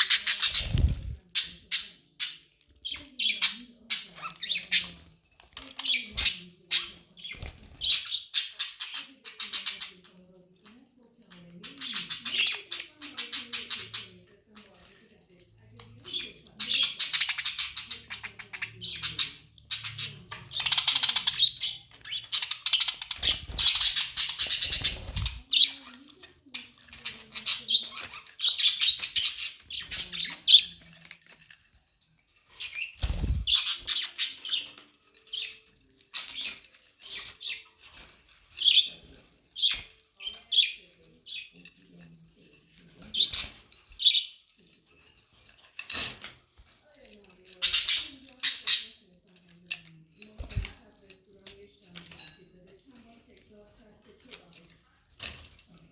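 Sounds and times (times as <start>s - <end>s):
budgerigars chattering and chirping: 0.0s - 10.2s, 11.3s - 14.8s, 15.8s - 31.0s, 32.5s - 41.6s, 42.8s - 44.5s, 47.6s - 49.0s.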